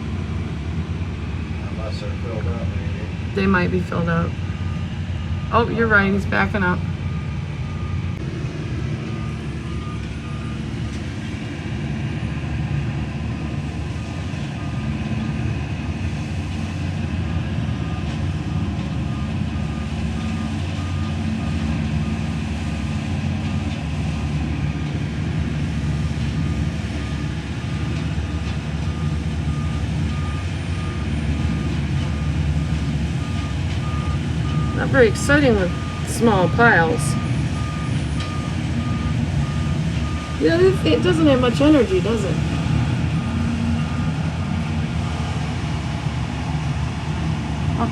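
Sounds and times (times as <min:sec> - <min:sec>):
truck engine running: 0:00.0 - 0:47.9
reverse alarm beeping: 0:03.4 - 0:08.2, 0:33.2 - 0:42.4.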